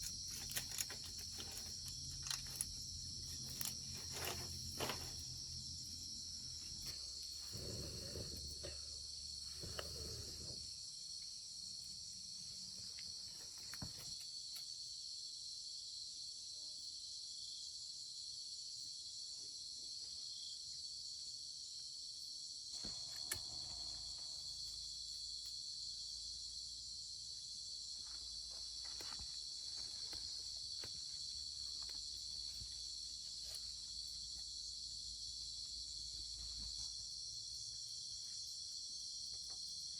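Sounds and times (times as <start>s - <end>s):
crickets and insects chirring: 0.0s - 39.9s.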